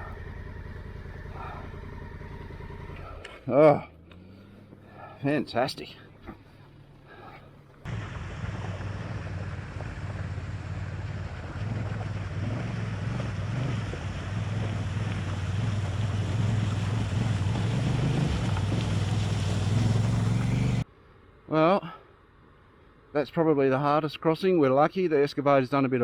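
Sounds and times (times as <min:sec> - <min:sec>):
motorcycle engine pulling: 0:07.8 - 0:20.8
water rushing and splashing: 0:07.9 - 0:20.8.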